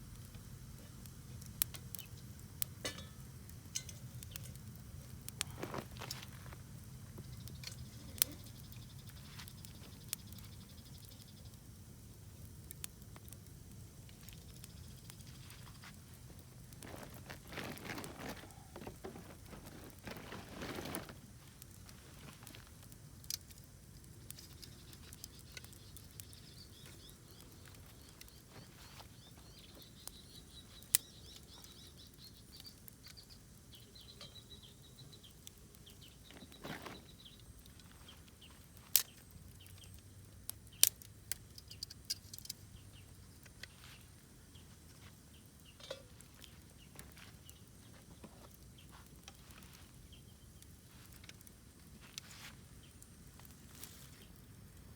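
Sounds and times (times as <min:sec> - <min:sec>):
campfire crackling and popping: 0:00.0 - 0:54.9.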